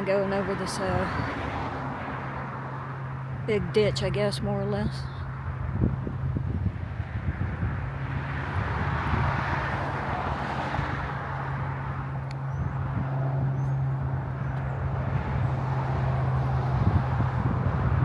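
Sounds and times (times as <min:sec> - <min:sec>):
low engine hum: 0:00.0 - 0:18.0
passing vehicle rushing: 0:05.0 - 0:18.0.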